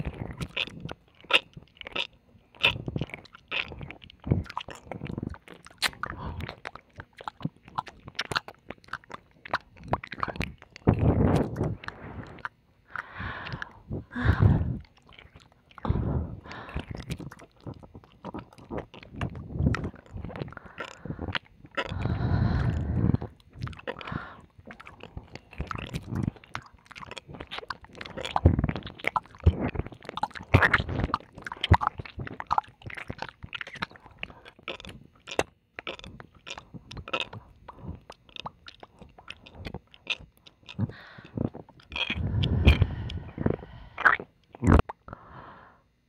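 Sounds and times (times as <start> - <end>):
wet licking and kissing sounds: 2.6 - 13.7.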